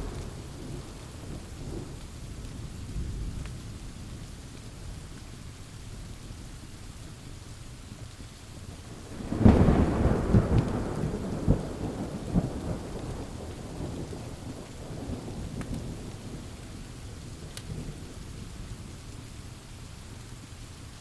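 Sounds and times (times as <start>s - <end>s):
thunder rumbling: 0.0s - 3.9s, 8.9s - 18.5s
pouring rain: 0.0s - 21.0s.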